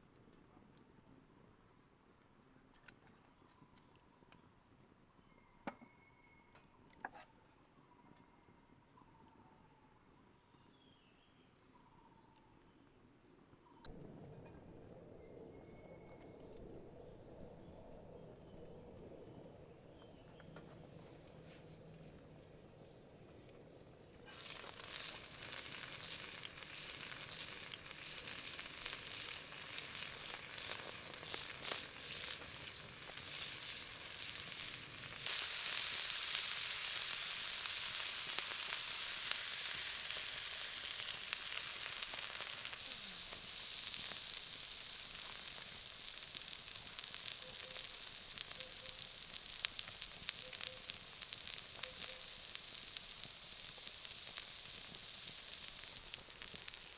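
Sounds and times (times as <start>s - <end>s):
beef sizzling on hot surface: 24.3s - 56.9s.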